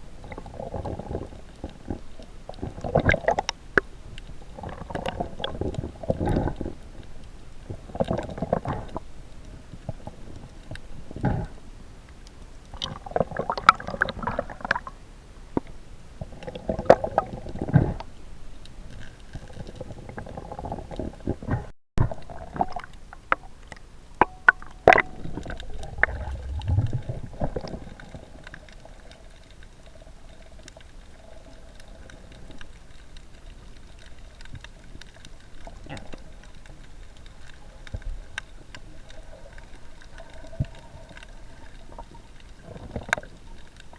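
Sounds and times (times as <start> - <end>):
water gurgling underwater: 20.0 - 29.2.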